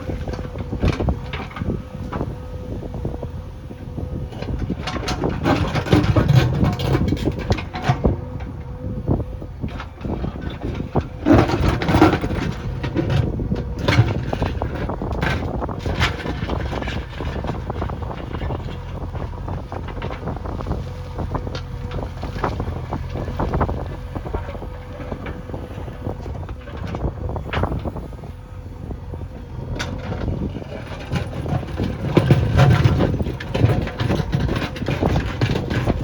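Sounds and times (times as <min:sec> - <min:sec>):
diesel engine running: 0:00.0 - 0:36.0
clanks and knocks: 0:04.4 - 0:08.5, 0:09.7 - 0:28.0, 0:29.8 - 0:36.0.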